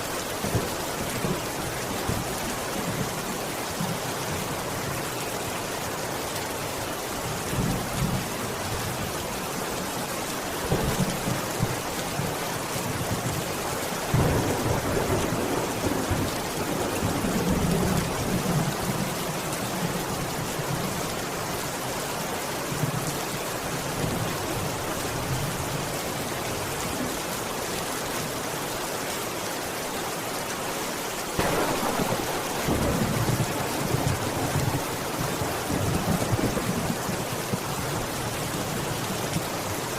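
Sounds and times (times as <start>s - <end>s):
steady rain: 0.0s - 39.9s
thunder rumbling: 14.1s - 18.8s, 31.4s - 37.7s.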